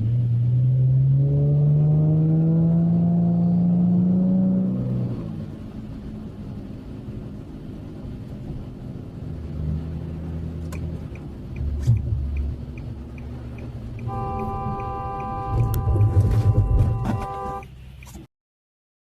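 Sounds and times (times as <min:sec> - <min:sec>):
car engine and road rumble: 0:00.0 - 0:18.3
faint regular ticking: 0:10.7 - 0:16.1
car horn held: 0:14.0 - 0:17.6.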